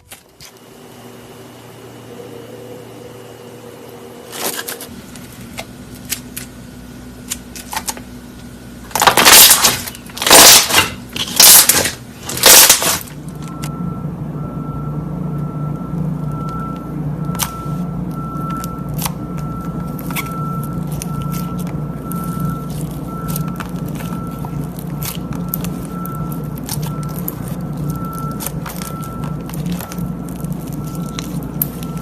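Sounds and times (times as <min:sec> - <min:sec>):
slime crackling and popping: 0:08.9 - 0:13.2, 0:18.4 - 0:32.0
low hum: 0:12.0 - 0:32.0
slime squishing: 0:17.3 - 0:32.0.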